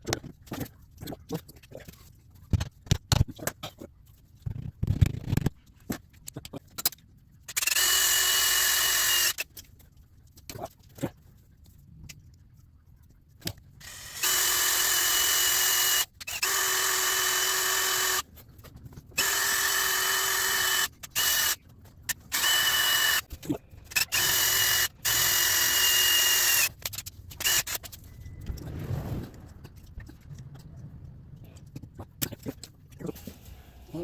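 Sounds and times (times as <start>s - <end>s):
electric power drill running: 7.6s - 9.4s, 13.8s - 18.2s, 19.2s - 21.6s, 22.3s - 23.3s, 23.9s - 26.7s.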